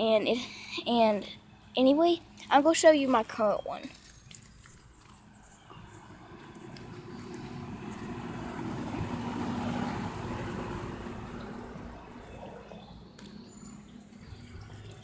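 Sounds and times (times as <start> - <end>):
motor vehicle passing by: 5.7 - 15.0.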